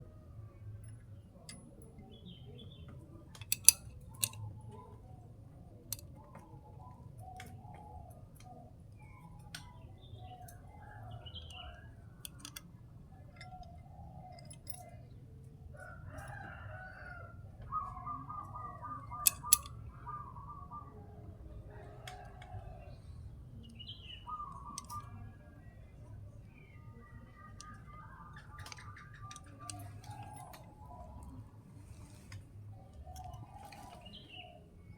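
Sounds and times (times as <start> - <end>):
rooster crowing: 15.8 - 17.6.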